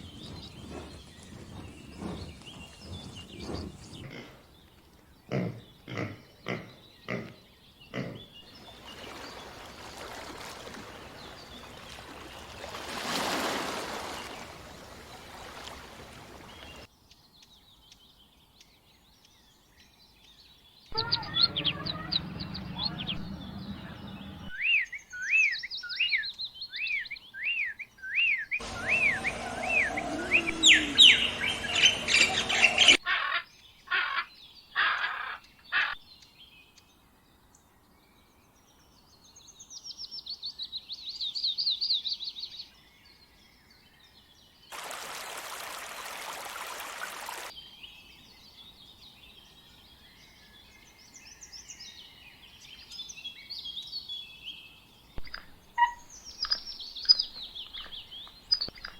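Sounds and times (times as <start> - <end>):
songbirds calling and singing: 0.0 - 58.9
high bird trill: 28.6 - 33.4.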